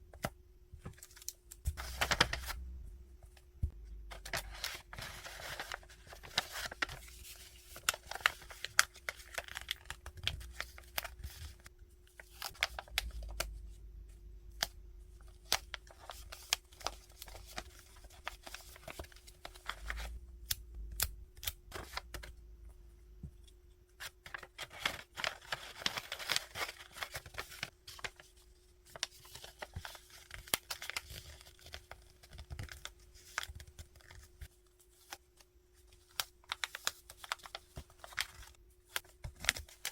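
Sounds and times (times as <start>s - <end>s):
faint steady hum: 0.0s - 39.9s
packaging rustling and tearing: 4.1s - 13.5s, 24.3s - 28.3s, 28.9s - 34.2s.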